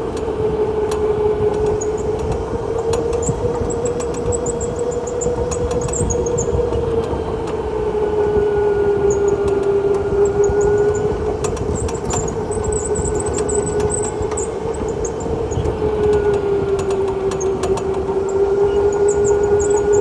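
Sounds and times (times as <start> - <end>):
go-kart motor whine: 0.0 - 20.0
rattling clicks: 9.1 - 20.0.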